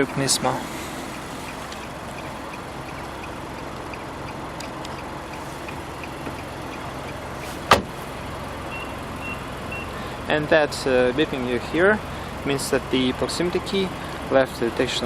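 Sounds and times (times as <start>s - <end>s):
car engine idling: 0.0s - 15.0s
car door shutting: 7.4s - 8.1s.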